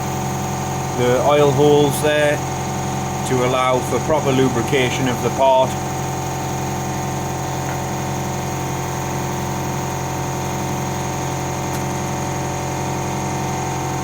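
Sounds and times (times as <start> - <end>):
motor humming: 0.0 - 14.0.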